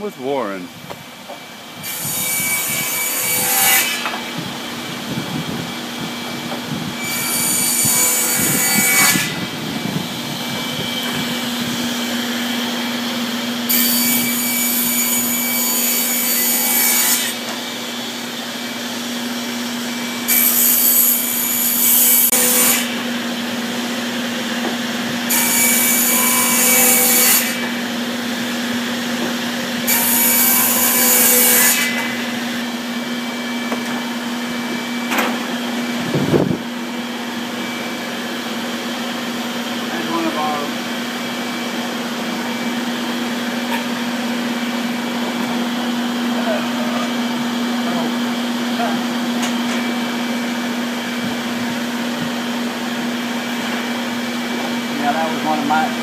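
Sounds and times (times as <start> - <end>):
power saw cutting wood: 1.8 - 56.0.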